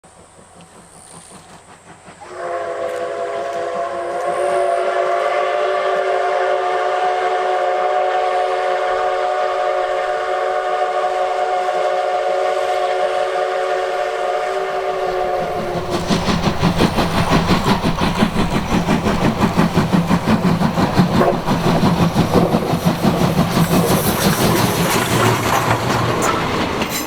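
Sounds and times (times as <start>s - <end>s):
steam whistle blast: 2.2s - 15.6s.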